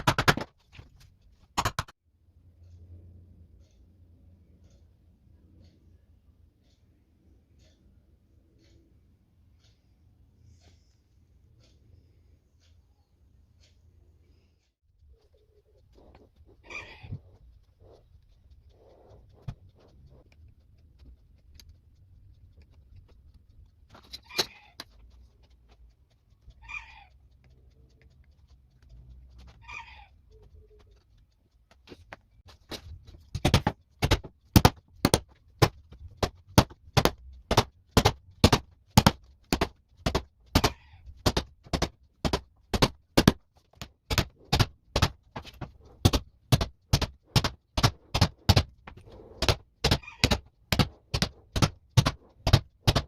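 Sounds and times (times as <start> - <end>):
hammer striking leather tools: 0.0 - 0.8, 1.6 - 1.9, 32.7 - 53.0.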